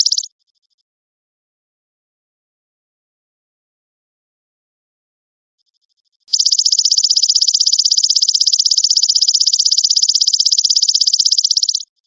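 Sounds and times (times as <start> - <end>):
grasshopper buzzing trill: 0.0 - 0.3, 6.3 - 11.8.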